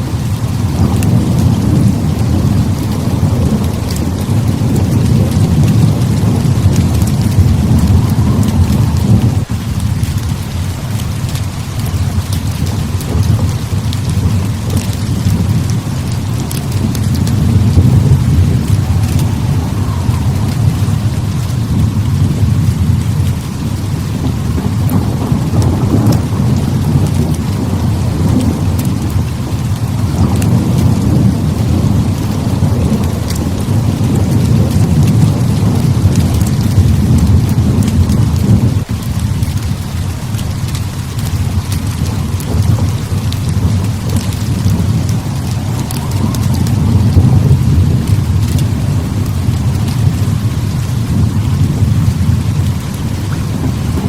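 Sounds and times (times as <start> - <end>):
heavy rain pouring: 0.0 - 54.0
low rolling thunder: 0.0 - 54.0.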